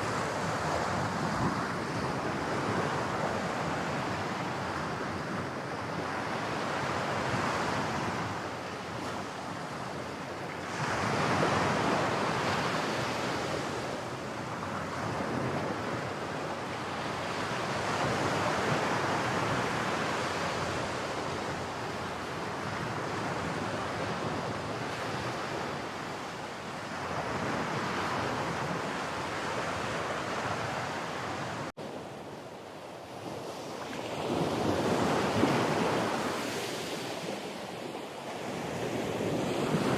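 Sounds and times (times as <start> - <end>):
wind on microphone: 33.1 - 39.9.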